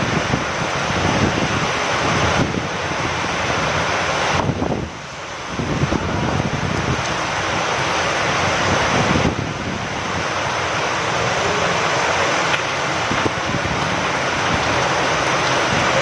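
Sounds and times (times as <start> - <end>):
steady rain hiss: 0.0 - 16.0
wind: 0.0 - 16.0
raindrop taps: 12.4 - 13.9.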